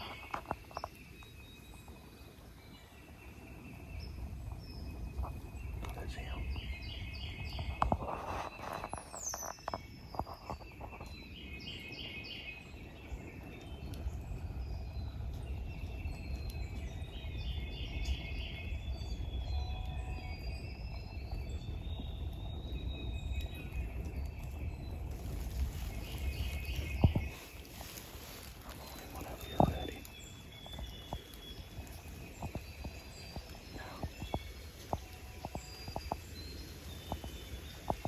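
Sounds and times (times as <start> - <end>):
songbirds chirping: 0.0 - 38.0
steady low rumble: 12.7 - 38.0.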